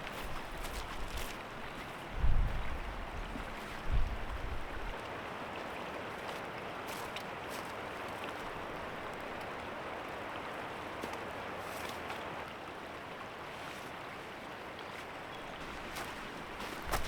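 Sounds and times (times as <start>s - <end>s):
wind rumble on microphone: 0.0s - 5.0s
creek running: 0.0s - 17.0s.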